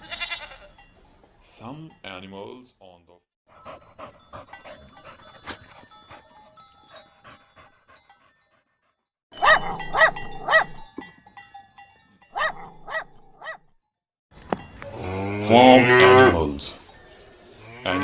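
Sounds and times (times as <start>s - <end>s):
dog panting: 3.5s - 10.9s
dog barking: 9.4s - 10.9s, 12.4s - 13.7s.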